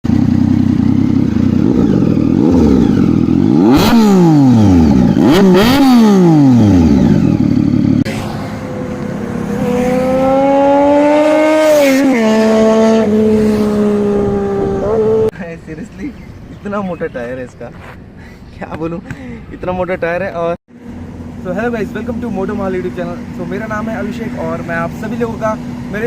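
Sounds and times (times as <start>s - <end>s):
motorcycle engine revving: 0.0s - 15.3s, 20.8s - 26.0s.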